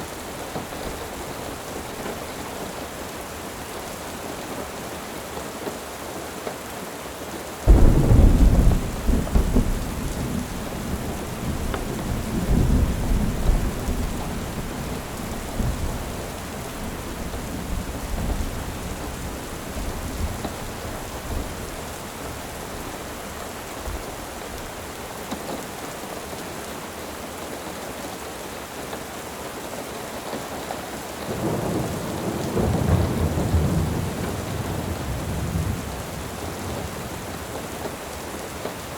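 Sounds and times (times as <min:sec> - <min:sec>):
steady rain: 0:00.0 - 0:38.9
thunder rolling: 0:07.7 - 0:23.0.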